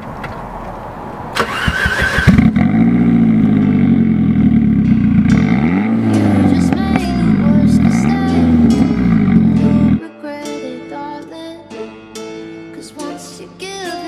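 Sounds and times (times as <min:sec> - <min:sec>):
car engine idling and revving: 0:00.0 - 0:10.0
starter motor cranking: 0:01.4 - 0:02.7.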